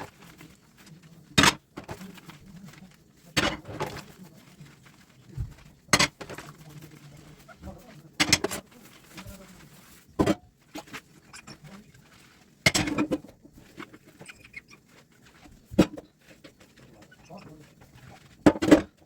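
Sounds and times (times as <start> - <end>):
dishes clinking during washing: 3.2 - 4.3, 5.4 - 9.3, 12.6 - 19.0.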